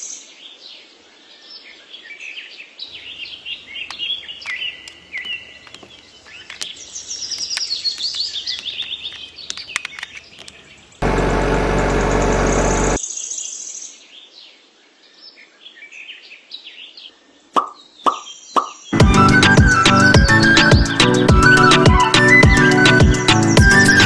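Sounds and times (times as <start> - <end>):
small birds chirping: 2.9 - 11.1
light clicks: 3.2 - 11.0.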